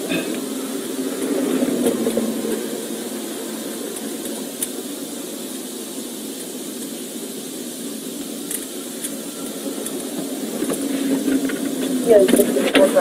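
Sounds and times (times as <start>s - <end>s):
engine and fan hum: 0.0s - 13.0s
faint ticks: 8.2s - 12.8s.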